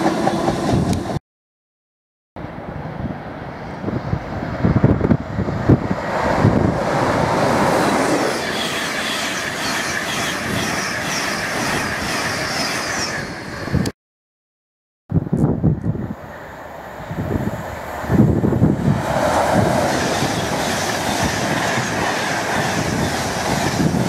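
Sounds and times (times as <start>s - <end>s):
express train passing: 0.0s - 1.2s, 2.4s - 13.9s, 15.6s - 24.0s.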